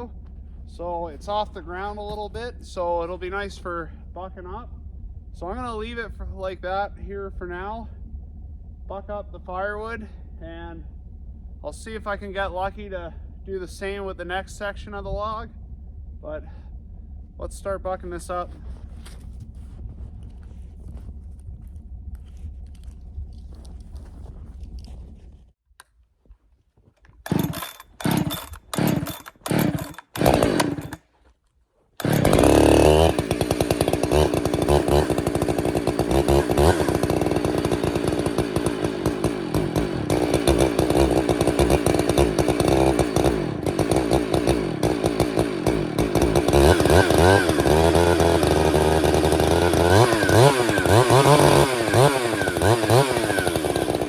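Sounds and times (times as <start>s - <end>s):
chainsaw engine running: 0.0s - 6.6s, 7.2s - 25.4s, 27.2s - 31.1s, 32.0s - 54.0s
faint low hum: 0.0s - 27.2s.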